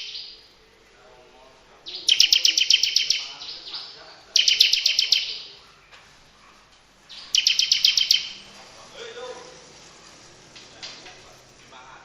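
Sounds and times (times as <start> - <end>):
songbird harsh rapid notes: 0.0 - 0.5, 1.8 - 5.6, 7.0 - 9.8.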